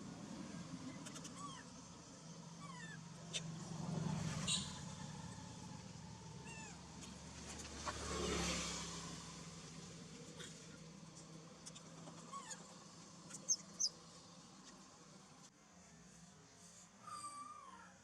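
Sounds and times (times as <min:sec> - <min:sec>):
baby monkey chirping cries: 0:00.9 - 0:02.0, 0:02.6 - 0:03.6, 0:04.4 - 0:05.1, 0:06.4 - 0:06.8, 0:11.7 - 0:12.7, 0:13.3 - 0:14.0.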